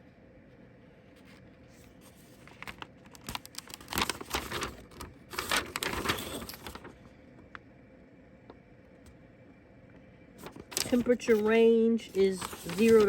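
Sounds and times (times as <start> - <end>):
packaging crinkling: 2.2 - 7.0, 10.4 - 13.0.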